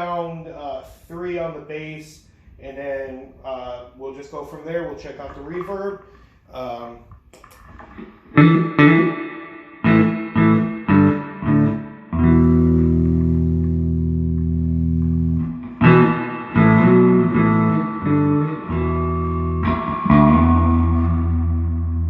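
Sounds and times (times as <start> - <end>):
electric bass guitar with reverb: 6.9 - 22.0.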